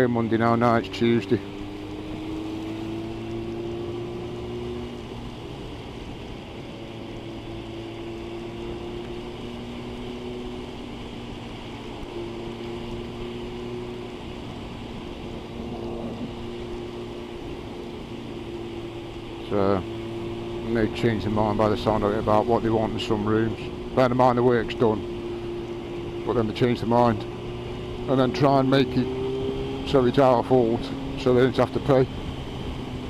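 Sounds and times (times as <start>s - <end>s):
motorcycle engine cruising: 0.0s - 33.0s
wind and road noise: 0.0s - 33.0s.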